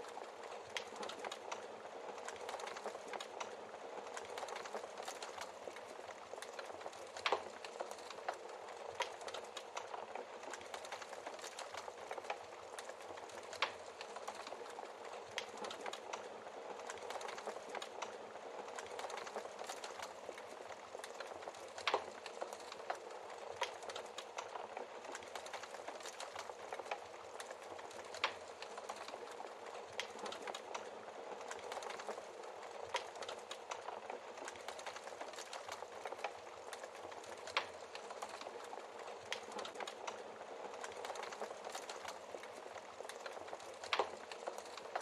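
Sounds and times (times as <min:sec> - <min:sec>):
wood fire crackling: 0:00.0 - 0:45.0
burning logs popping: 0:00.1 - 0:45.0.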